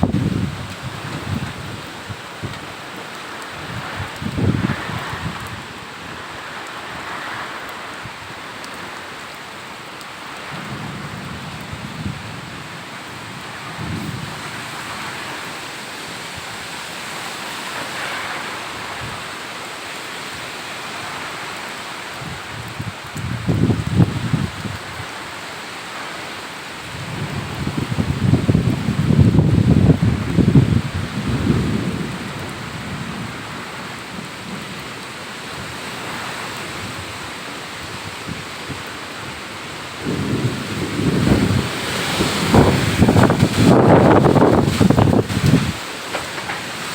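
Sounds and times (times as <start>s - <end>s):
wind buffeting microphone: 0.0s - 2.9s, 3.5s - 7.2s, 22.1s - 25.2s, 26.9s - 34.8s, 35.5s - 46.9s
heavy rain falling: 0.0s - 46.9s.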